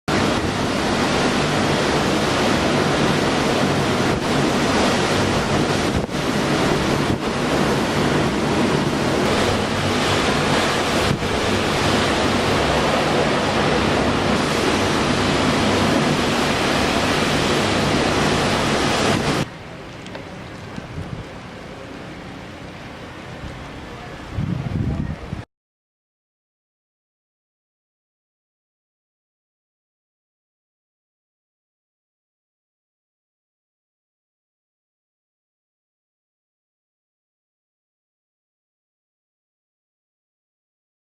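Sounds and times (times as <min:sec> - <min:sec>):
wind blasting microphone: 0:00.1 - 0:22.5, 0:23.2 - 0:25.5.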